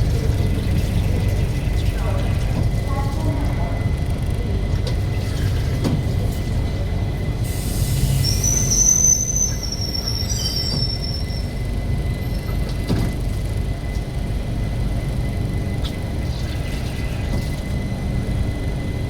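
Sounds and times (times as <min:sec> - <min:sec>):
train rumbling: 0:00.0 - 0:19.0
metallic wheel squeal: 0:08.0 - 0:11.6.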